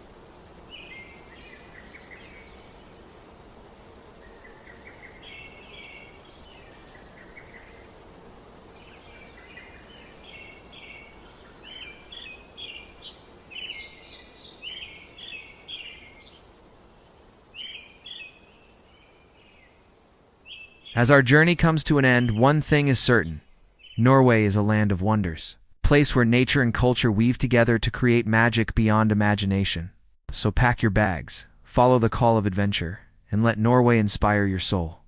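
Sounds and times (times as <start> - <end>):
small birds chirping: 0.0 - 24.3
outdoor background hiss: 0.0 - 35.0.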